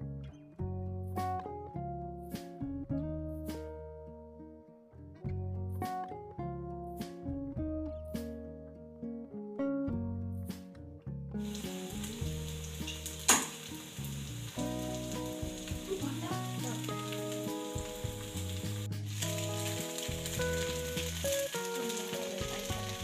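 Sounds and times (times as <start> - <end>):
frying in oil sizzling: 11.4 - 23.0
sharp crack: 13.0 - 13.8.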